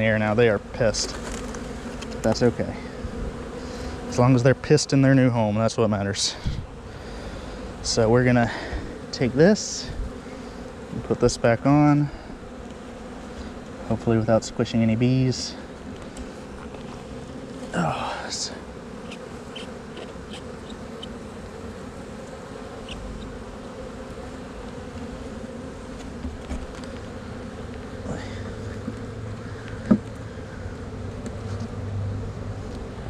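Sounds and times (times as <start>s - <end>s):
bees buzzing: 0.0s - 33.0s.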